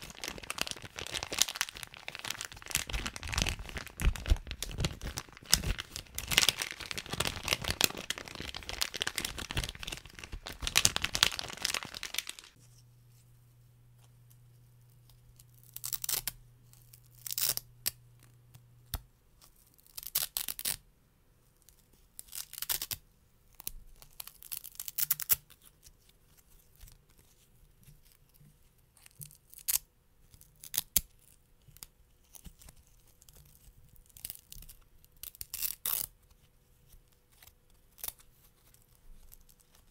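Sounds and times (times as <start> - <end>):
plastic bag crinkling: 0.0 - 12.6
velcro ripping apart: 0.0 - 12.6, 15.6 - 18.0, 19.7 - 20.8, 22.2 - 23.0, 34.0 - 36.1.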